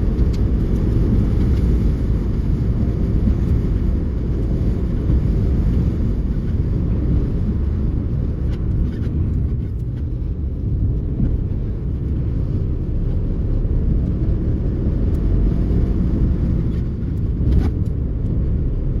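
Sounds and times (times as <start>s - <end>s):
car engine rumble: 0.0s - 19.0s.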